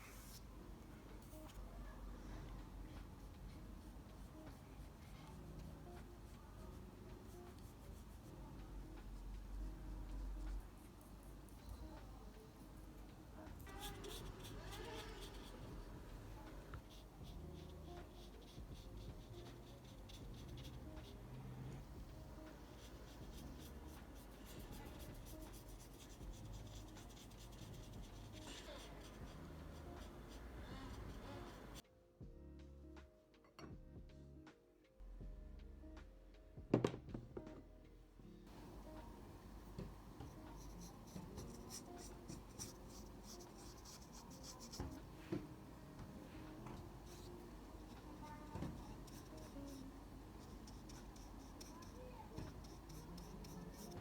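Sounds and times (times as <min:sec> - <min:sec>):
pencil scratching on paper: 0:13.6 - 0:15.9, 0:16.7 - 0:21.8, 0:22.5 - 0:31.8, 0:40.2 - 0:45.5, 0:46.4 - 0:54.0.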